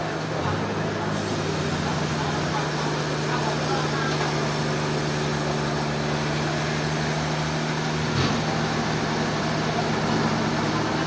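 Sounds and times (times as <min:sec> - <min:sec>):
sawmill machinery humming: 0:00.0 - 0:11.0.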